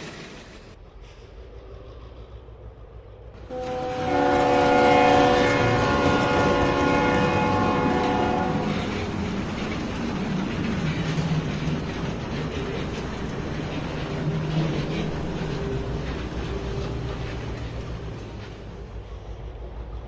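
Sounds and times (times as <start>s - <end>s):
moving train rumble: 0.0s - 20.0s
train horn chord: 3.4s - 9.3s.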